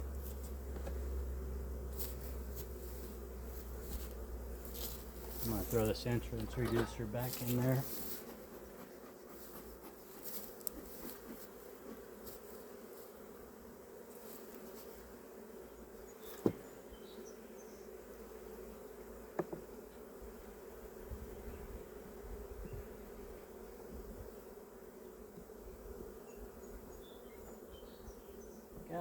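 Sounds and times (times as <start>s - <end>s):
bees buzzing: 0.0s - 29.0s.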